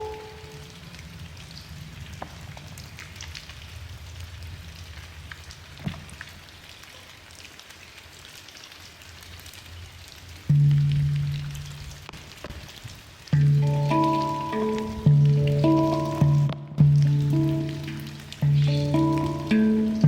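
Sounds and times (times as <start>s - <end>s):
handpan note ringing: 0.0s - 0.6s, 13.4s - 20.0s
steady rain falling: 0.0s - 20.0s
drops ticking: 13.3s - 20.0s.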